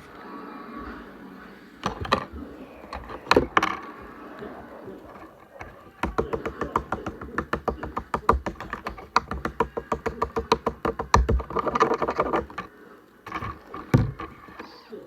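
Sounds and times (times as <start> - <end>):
rapid sharp clicks: 5.4 - 12.7.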